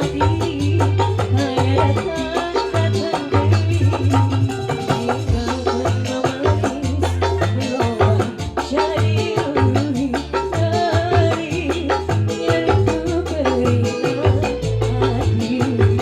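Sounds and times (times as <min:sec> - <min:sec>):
pitch-bending melodic lead: 0:00.0 - 0:09.6
bass line: 0:00.0 - 0:16.0
fast percussion rhythm: 0:00.0 - 0:16.0.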